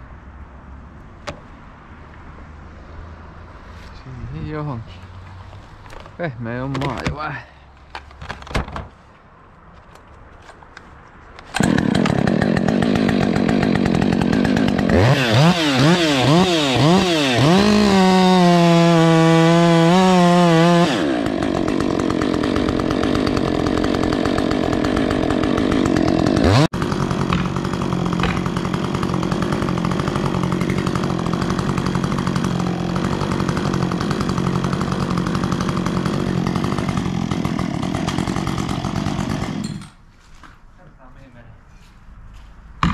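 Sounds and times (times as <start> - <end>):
chainsaw revving: 11.5 - 40.0.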